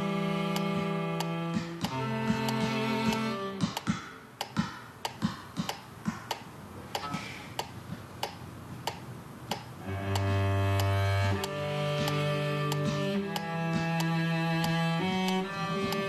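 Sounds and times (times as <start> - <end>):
cello notes: 0.0 - 3.9, 9.8 - 16.0.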